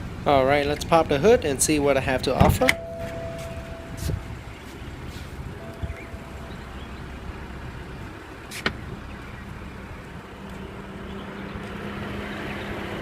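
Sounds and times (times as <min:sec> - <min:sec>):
car engine idling: 0:00.0 - 0:11.7
hood latch click: 0:02.4 - 0:04.2.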